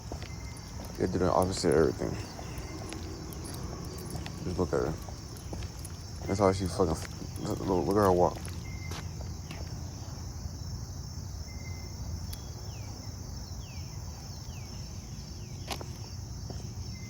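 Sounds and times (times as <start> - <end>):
low outdoor rumble: 0.0 - 11.1
insects chirring: 0.0 - 17.0.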